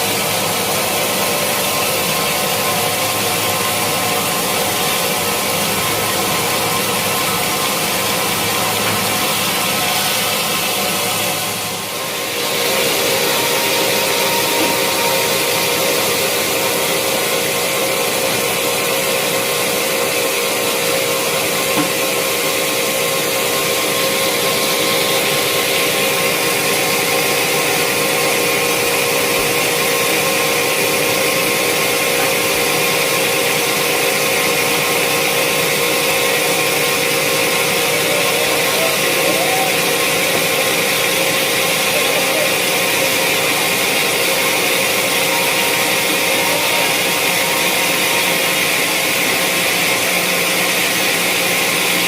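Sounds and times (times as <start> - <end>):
sawmill saw cutting wood: 0.0 - 52.0.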